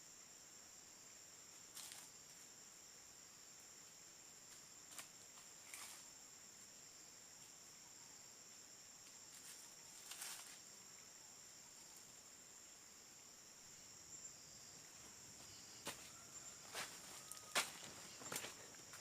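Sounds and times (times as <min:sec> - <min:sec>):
faint insects chirring: 0:00.0 - 0:19.0
footsteps crunching in leaf litter: 0:15.8 - 0:18.6.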